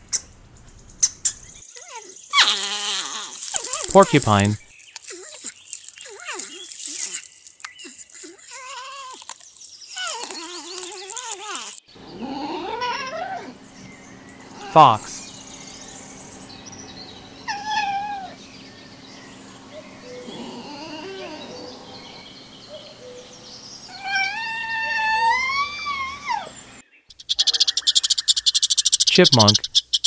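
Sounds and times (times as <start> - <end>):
high chirps: 0.0 - 1.6
fox crying: 20.1 - 22.0, 23.9 - 26.6.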